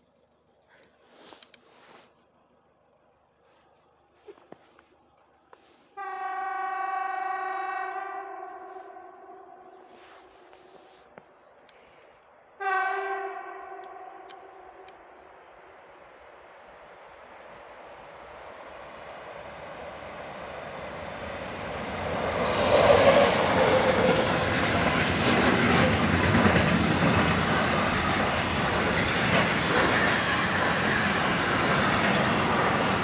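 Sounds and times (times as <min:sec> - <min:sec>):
electric locomotive passing: 0:03.4 - 0:33.0.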